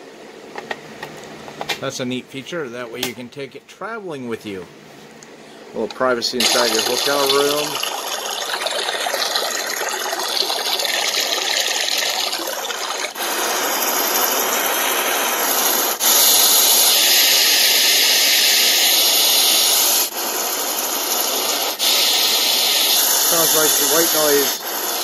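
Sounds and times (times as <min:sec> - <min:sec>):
white noise from small speaker: 0:00.0 - 0:25.0
rain-like water hiss: 0:06.4 - 0:25.0.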